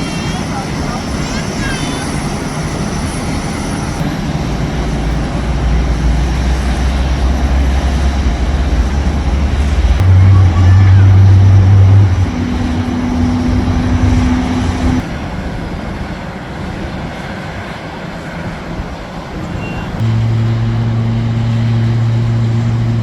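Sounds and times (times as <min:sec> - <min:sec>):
even rushing noise: 0:00.0 - 0:17.2
low machine hum: 0:04.0 - 0:15.0, 0:20.0 - 0:23.0.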